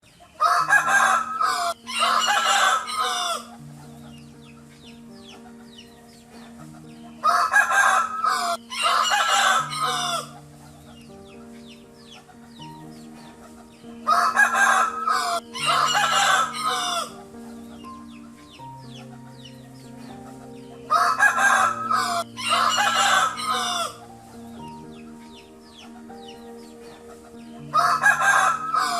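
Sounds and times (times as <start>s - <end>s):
rooster crowing: 0.4s - 3.6s, 7.2s - 10.4s, 14.1s - 17.2s, 20.9s - 24.1s, 27.7s - 28.9s.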